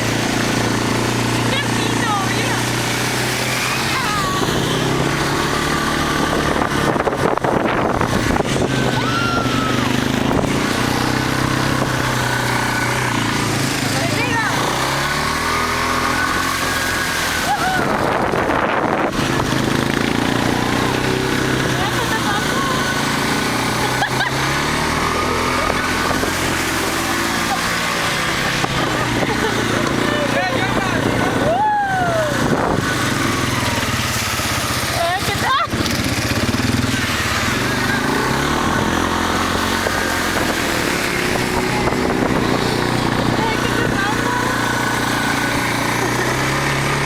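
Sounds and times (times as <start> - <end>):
motorcycle engine running: 0.0 - 47.0
faint voices: 3.5 - 5.3, 21.5 - 33.9.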